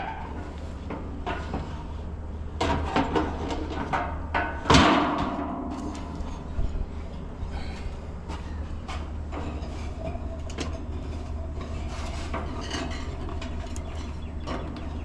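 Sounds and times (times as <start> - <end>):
steady low hum: 0.0 - 15.0
objects knocking and clanking: 2.6 - 7.3, 8.2 - 15.0.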